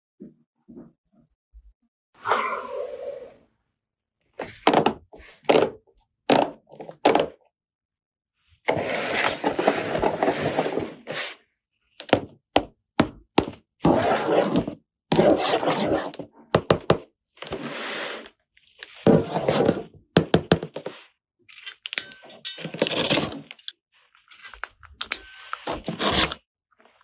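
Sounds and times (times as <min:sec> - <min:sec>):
plastic scraping: 0:08.7 - 0:11.2.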